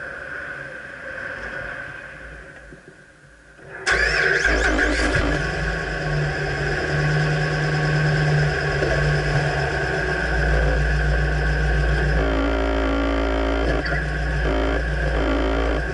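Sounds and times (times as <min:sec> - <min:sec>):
pickup truck engine starting and idling: 0:03.8 - 0:15.9.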